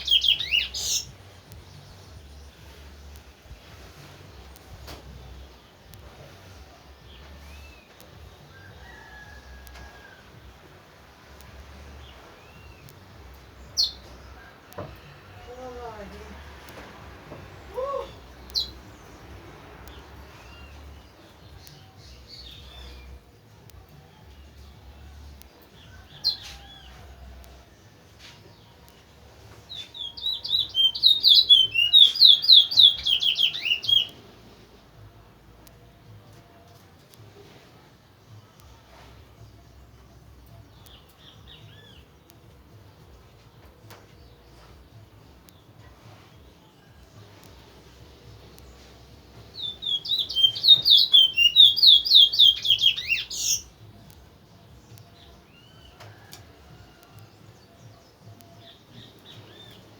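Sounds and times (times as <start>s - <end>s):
finch singing whistled notes: 0.0s - 3.2s, 29.7s - 34.2s, 48.5s - 54.2s
songbird whistled song: 0.0s - 15.6s, 16.6s - 35.0s, 35.6s - 59.9s.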